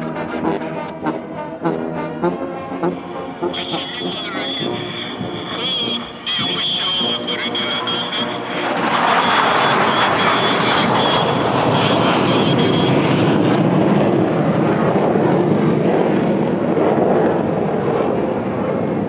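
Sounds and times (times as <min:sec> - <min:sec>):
jet flying past overhead: 0:00.0 - 0:19.0.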